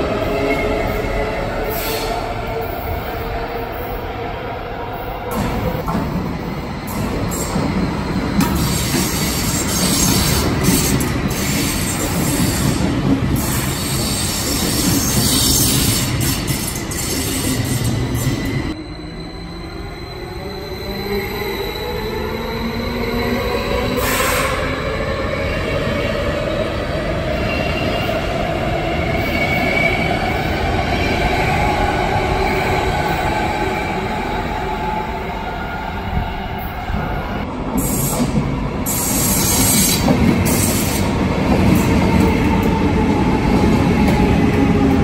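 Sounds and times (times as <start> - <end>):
train wheels rumbling on rails: 5.2 - 18.8, 36.0 - 45.0.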